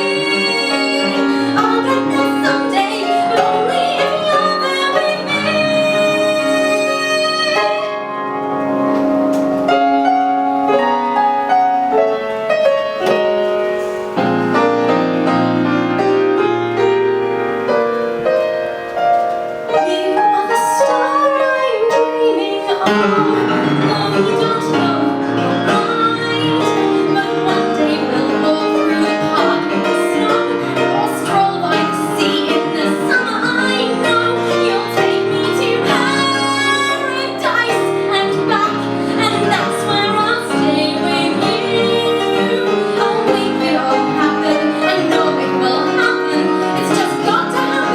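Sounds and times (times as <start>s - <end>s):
woman singing: 0.0s - 8.1s, 19.7s - 47.9s
piano accompaniment: 0.0s - 47.9s.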